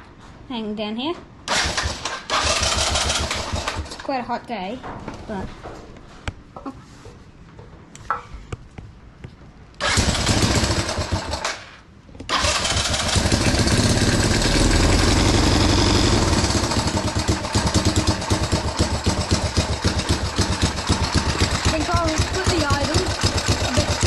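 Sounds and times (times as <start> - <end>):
motorcycle engine starting and idling: 1.5 - 4.1, 9.8 - 24.0.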